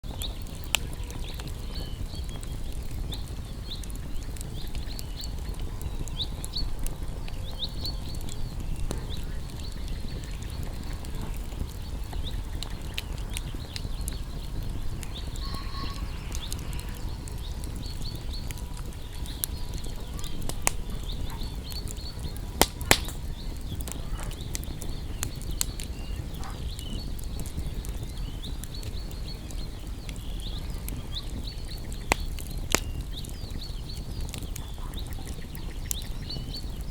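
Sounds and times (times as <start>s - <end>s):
campfire crackling and popping: 0.0s - 36.9s.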